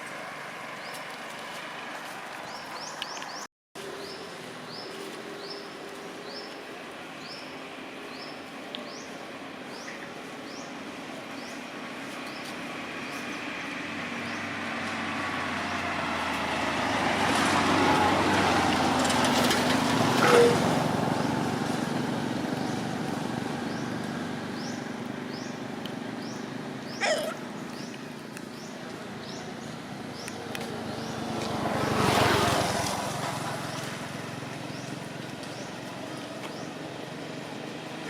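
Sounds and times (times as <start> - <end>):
motor vehicle passing: 8.9 - 38.0
brief squeak: 20.2 - 20.6.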